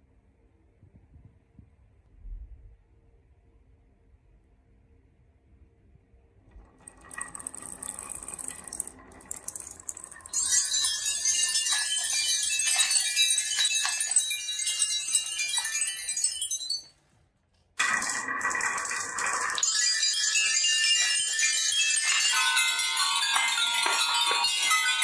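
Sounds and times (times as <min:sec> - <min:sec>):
marbles rattling down a marble run: 0:06.6 - 0:16.9, 0:17.8 - 0:25.0.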